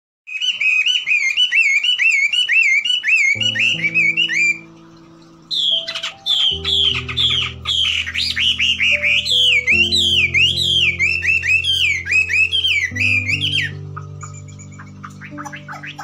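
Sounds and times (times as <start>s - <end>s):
bird whistling and chirping: 0.3s - 16.0s
sustained music notes: 3.4s - 16.0s.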